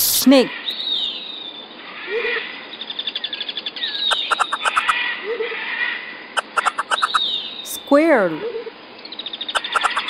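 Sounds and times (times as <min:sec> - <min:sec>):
bird chirping and whistling: 0:03.8 - 0:04.9, 0:06.4 - 0:07.9.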